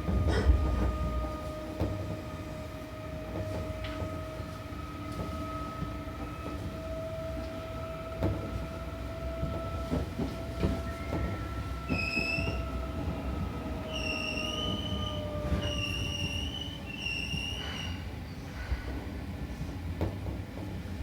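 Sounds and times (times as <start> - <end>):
electric train motor hum: 0.0 - 15.6
high wheel squeal: 10.8 - 12.9, 13.8 - 18.1.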